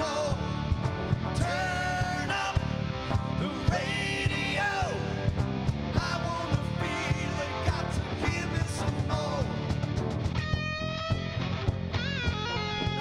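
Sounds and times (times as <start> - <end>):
bass guitar: 0.0 - 13.0
electric guitar lead: 0.0 - 13.0.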